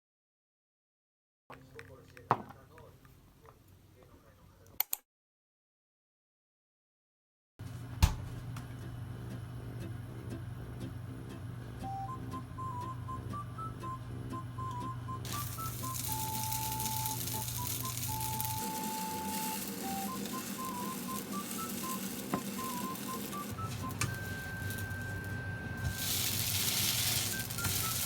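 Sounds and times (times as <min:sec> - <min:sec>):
food sizzling in a frying pan: 0:15.3 - 0:28.0.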